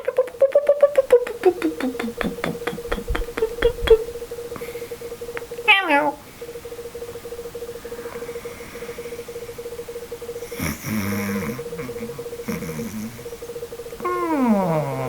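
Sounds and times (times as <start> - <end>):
steady held synth tone: 0.0 - 15.0
falling meow-like glide: 5.7 - 6.2.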